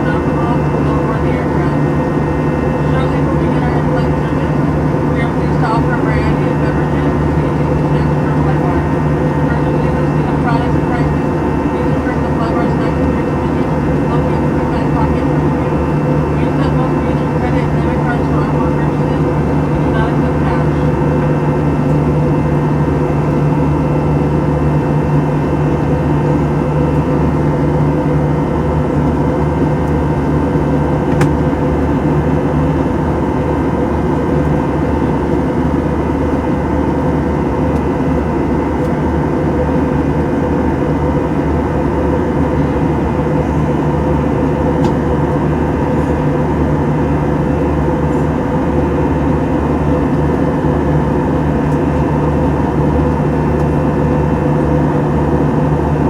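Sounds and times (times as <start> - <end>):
airliner engine hum: 0.0 - 56.0
constant cabin tones: 0.0 - 56.0.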